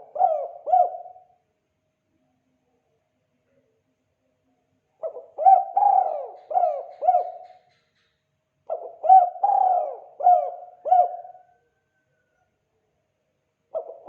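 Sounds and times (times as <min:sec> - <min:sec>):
dove cooing: 0:00.0 - 0:01.4, 0:05.0 - 0:07.8, 0:08.7 - 0:12.0, 0:13.7 - 0:14.0.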